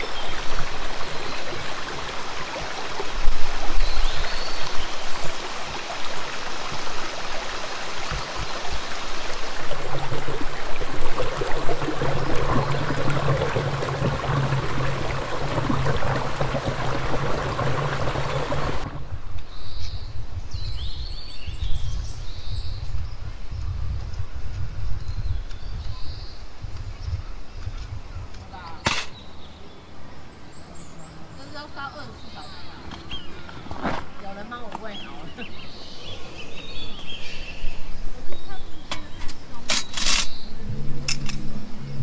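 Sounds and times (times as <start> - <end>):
flowing water rushing: 0.0 - 19.3
low rumble: 40.5 - 42.0.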